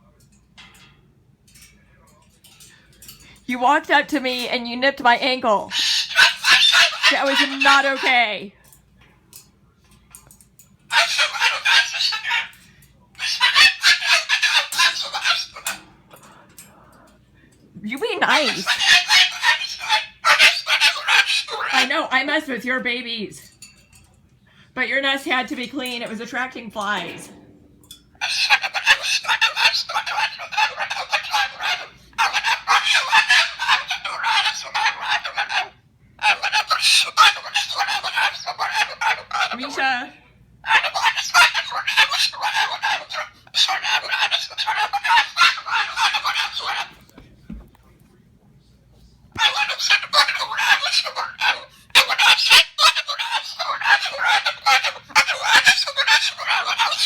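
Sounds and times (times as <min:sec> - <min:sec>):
cockatoo screeching: 0:05.7 - 0:08.2, 0:10.9 - 0:12.6, 0:13.2 - 0:15.8, 0:18.2 - 0:22.0, 0:28.2 - 0:40.0, 0:40.6 - 0:47.0, 0:49.4 - 0:57.0.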